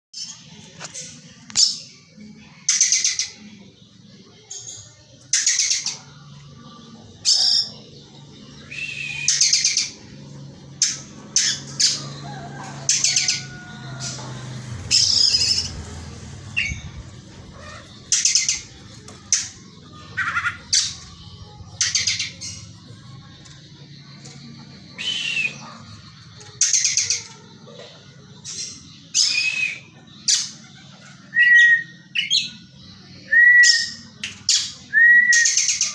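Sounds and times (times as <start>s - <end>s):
bird giving harsh calls: 16.5s - 21.2s, 25.0s - 25.8s.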